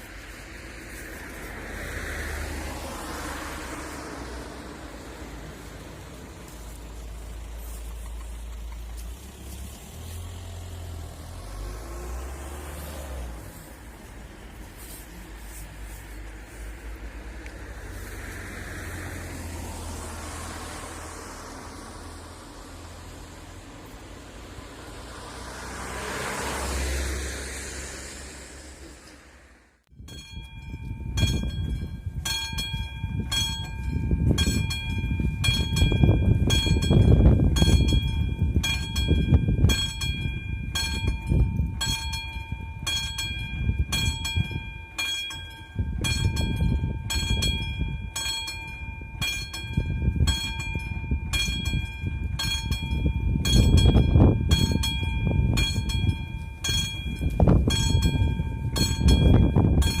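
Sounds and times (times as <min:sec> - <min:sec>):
train passing rumble: 0:00.0 - 1:00.0
level crossing warning bell ringing: 0:30.0 - 1:00.0.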